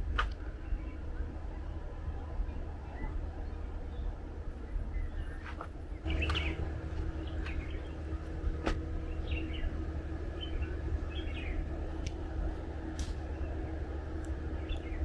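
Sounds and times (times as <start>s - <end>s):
faint hum: 0.0s - 15.0s
steady low rumble: 5.9s - 15.0s
small birds chirping: 6.0s - 15.0s.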